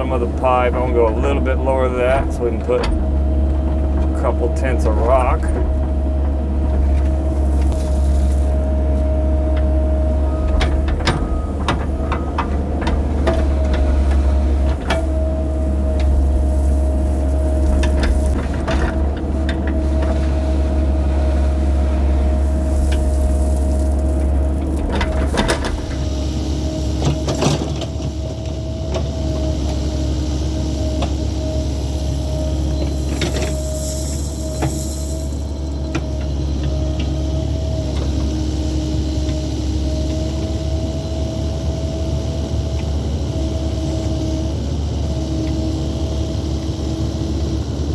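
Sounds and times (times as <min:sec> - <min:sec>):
excavator diesel engine: 0:00.0 - 0:47.9
bucket scraping dirt: 0:06.4 - 0:10.9, 0:13.0 - 0:28.4, 0:29.1 - 0:36.6.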